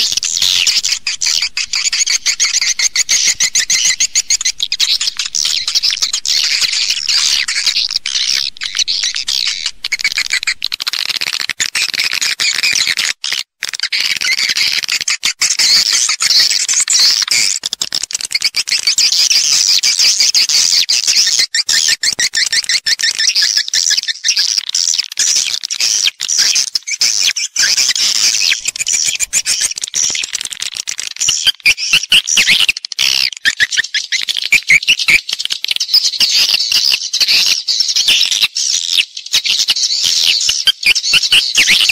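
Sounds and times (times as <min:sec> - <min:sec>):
swiftlets twittering: 0:00.0 - 0:10.8, 0:28.2 - 0:30.3.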